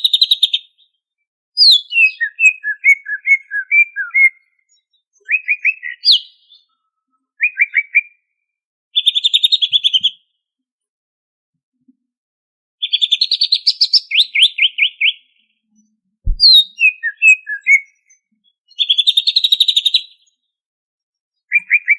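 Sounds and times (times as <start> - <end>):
bird singing trills and phrases: 1.6 - 8.2, 12.8 - 20.5, 21.4 - 21.9.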